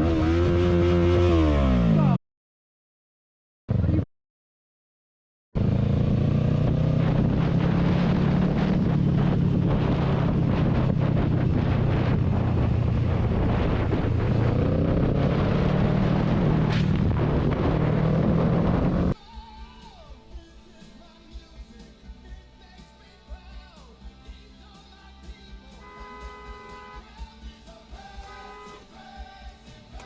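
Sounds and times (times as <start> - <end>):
vehicle engine hum: 5.6 - 19.2
wind noise on microphone: 6.4 - 19.2.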